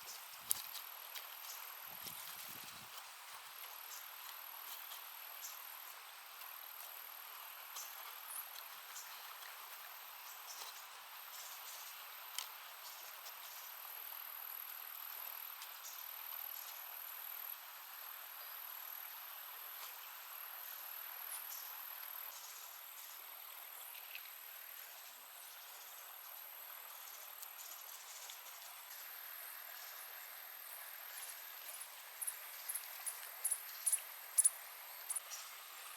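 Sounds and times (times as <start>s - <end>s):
crickets trilling: 20.7s - 35.9s.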